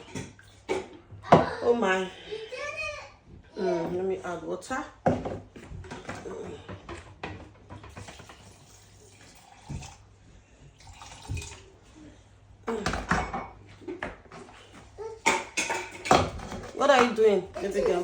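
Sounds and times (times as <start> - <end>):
water pouring: 7.9 - 10.1, 10.8 - 11.8
dishes and utensils clinking: 12.7 - 14.5, 15.1 - 18.0.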